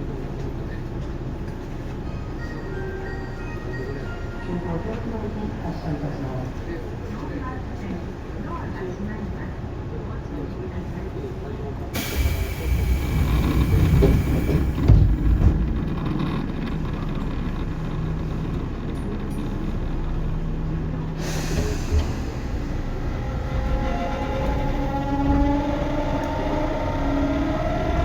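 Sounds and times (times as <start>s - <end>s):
train wheels rumbling on rail: 11.1s - 28.0s.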